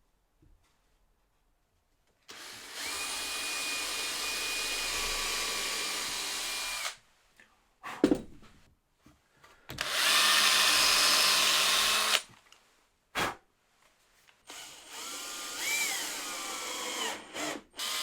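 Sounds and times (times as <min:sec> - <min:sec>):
power drill whining: 0:02.3 - 0:07.0, 0:09.8 - 0:12.3, 0:14.5 - 0:18.0.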